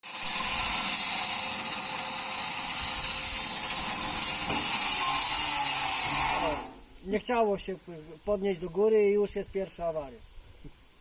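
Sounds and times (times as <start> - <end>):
sawmill machinery hissing: 0.0 - 7.0.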